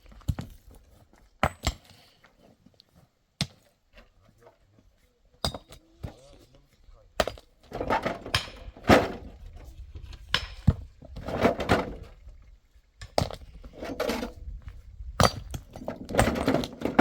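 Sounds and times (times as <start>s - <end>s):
hard objects knocking and clattering: 7.2s - 9.5s, 15.2s - 17.0s
scraping: 7.6s - 12.2s, 13.4s - 14.5s.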